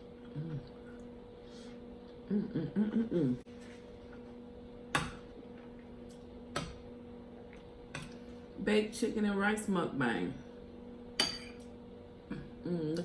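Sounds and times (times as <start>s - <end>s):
hummed vocal murmurs: 0.0s - 1.1s, 2.1s - 3.5s, 12.2s - 13.0s
steady electrical hum: 0.0s - 13.0s.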